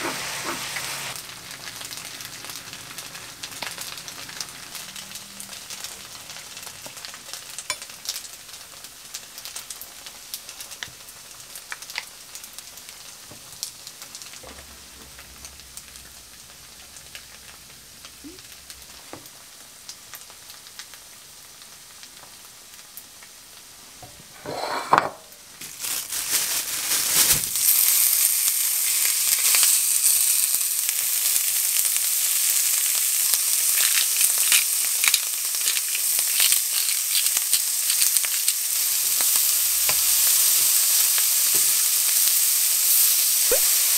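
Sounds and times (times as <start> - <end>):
meat sizzling in a frying pan: 0.0 - 43.9
faint crackles and clicks: 33.3 - 38.6.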